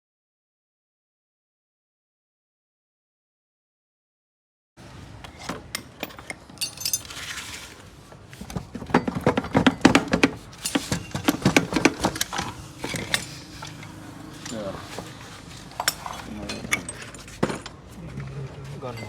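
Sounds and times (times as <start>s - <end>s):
metal tools clinking: 5.2s - 7.8s, 8.8s - 17.8s.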